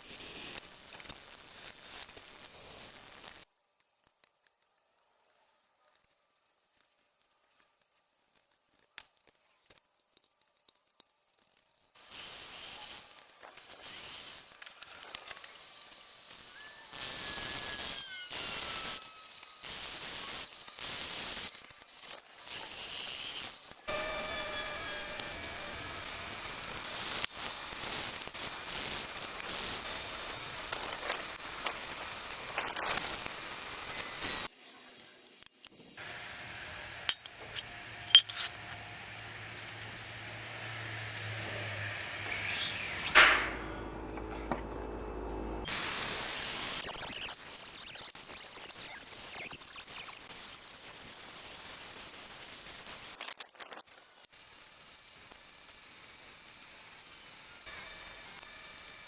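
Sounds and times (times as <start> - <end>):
hissing noise: 12.0 - 36.3
sharp clinks: 37.1 - 40.2.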